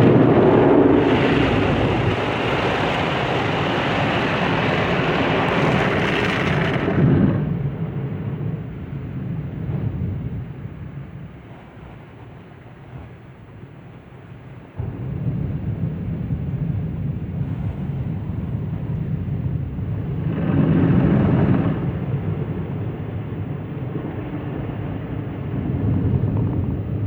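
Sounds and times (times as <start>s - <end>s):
car wash rushing noise: 0.0s - 8.0s.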